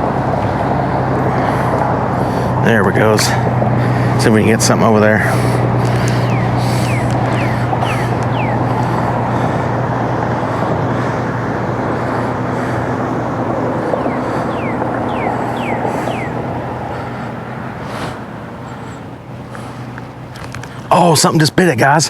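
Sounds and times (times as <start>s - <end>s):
engine drone: 0.0s - 22.0s.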